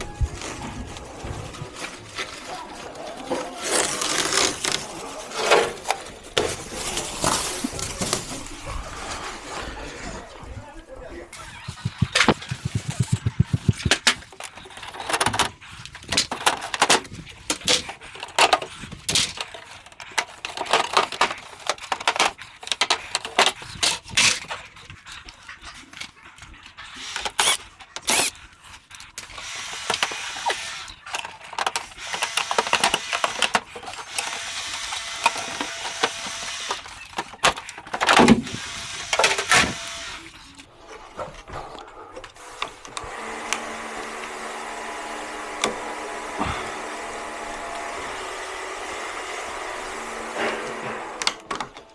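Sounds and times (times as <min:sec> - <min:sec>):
plastic panels and tools clicking: 0:00.0 - 0:09.4, 0:11.4 - 0:40.7.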